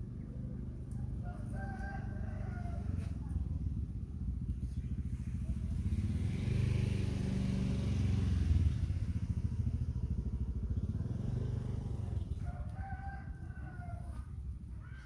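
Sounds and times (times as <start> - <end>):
rooster crowing: 1.2 - 3.1, 12.4 - 14.3
motorcycle engine running: 2.0 - 15.0.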